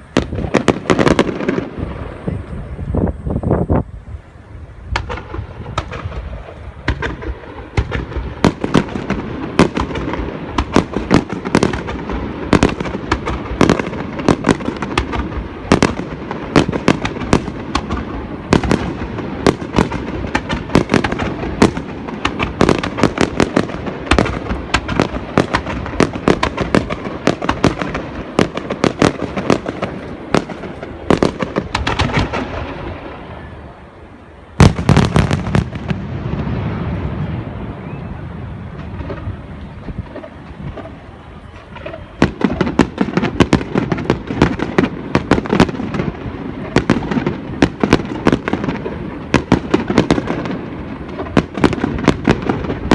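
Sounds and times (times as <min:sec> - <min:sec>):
continuous rumble: 0:00.0 - 0:52.9
fireworks shells bursting: 0:04.9 - 0:33.5.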